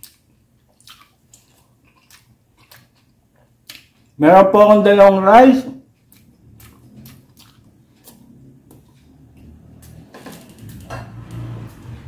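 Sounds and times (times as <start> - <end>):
low rumble of movement: 6.4 - 12.0.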